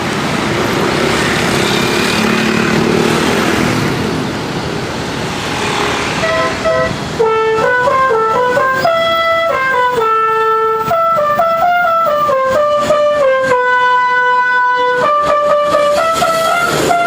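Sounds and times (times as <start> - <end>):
musical air horn playing a tune: 5.6 - 17.0.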